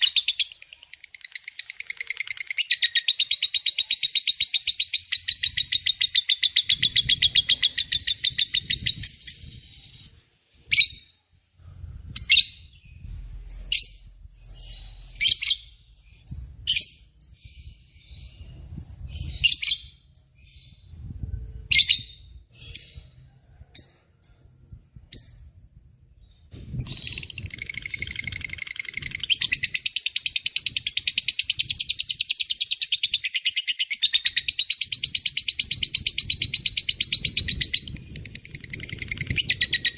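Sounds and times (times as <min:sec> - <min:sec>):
bird rapid trill: 0:00.0 - 0:09.6, 0:26.7 - 0:39.9
sharp bird chirps: 0:00.0 - 0:11.2, 0:26.3 - 0:39.9.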